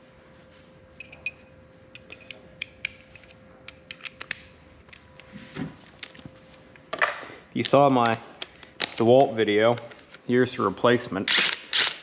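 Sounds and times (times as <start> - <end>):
faint steady hum: 0.0 - 11.1
metallic tool clicks and clinks: 1.0 - 5.3, 6.8 - 9.3.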